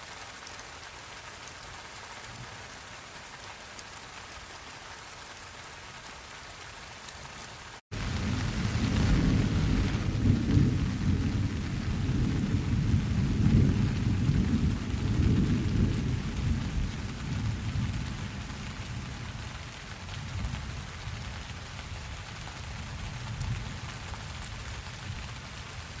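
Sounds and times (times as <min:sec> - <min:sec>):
steady rain: 0:00.0 - 0:26.0
rolling thunder: 0:07.9 - 0:19.1.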